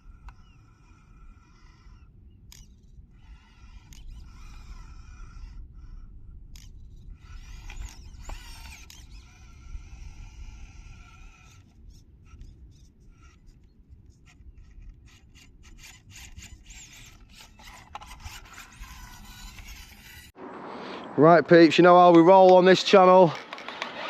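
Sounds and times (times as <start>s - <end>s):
wind rumble on microphone: 0.0s - 15.2s
electric motor whining: 0.0s - 20.4s.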